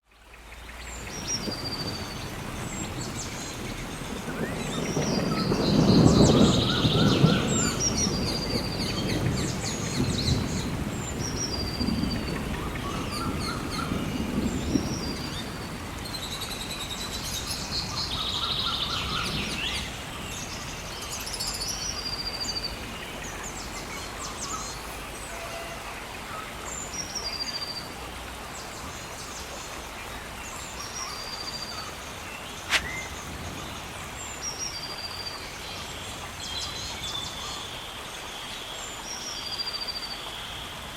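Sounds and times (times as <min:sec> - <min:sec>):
birds calling: 0:00.7 - 0:27.8, 0:30.0 - 0:34.4.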